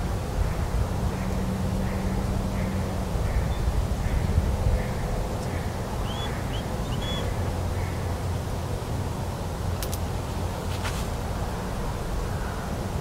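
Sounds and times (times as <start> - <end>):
distant bird chirps: 1.8 - 8.0.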